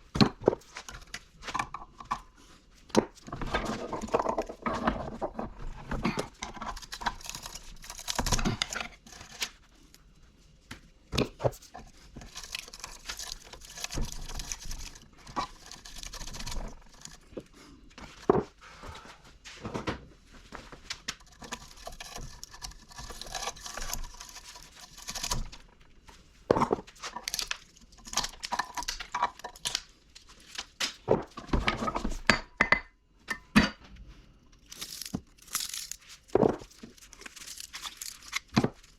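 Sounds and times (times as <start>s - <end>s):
scraping and tearing noises: 0.6s - 10.0s, 11.4s - 18.3s, 20.8s - 26.2s, 26.8s - 31.4s, 34.6s - 38.9s.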